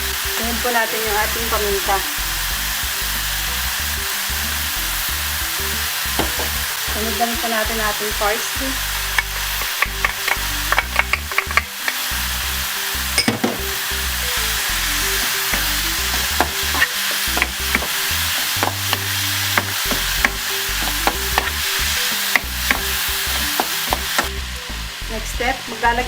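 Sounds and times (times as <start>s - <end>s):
sauce sizzling in a frying pan: 0.0s - 26.0s
spoon clicking against pan: 9.1s - 12.1s, 15.2s - 24.3s.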